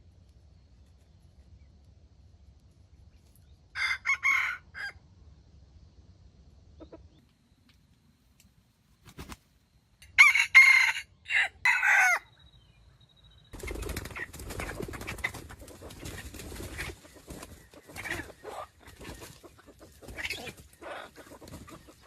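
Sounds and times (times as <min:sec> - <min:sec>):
rooster crowing: 0:03.8 - 0:05.0, 0:10.1 - 0:12.3
faint clucks: 0:06.6 - 0:07.8, 0:14.6 - 0:22.0.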